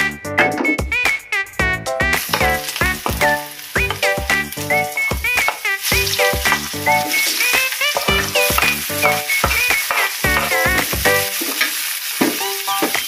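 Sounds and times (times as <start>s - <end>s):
background music: 0.0s - 11.4s
vegetables sizzling in oil: 2.2s - 13.0s
metal spatula scraping pan: 6.5s - 11.7s.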